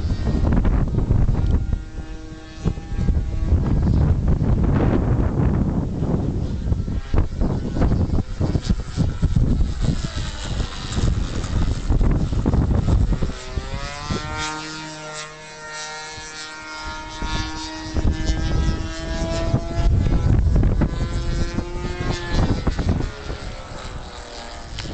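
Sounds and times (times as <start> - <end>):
model aircraft motor whining: 0.0 - 24.9
wind buffeting microphone: 0.0 - 24.9.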